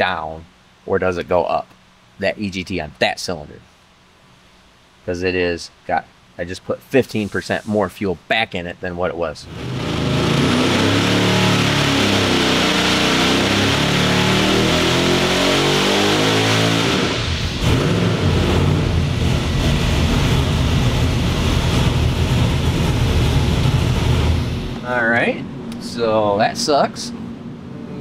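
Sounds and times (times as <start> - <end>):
vee eight engine revving: 9.4 - 26.7.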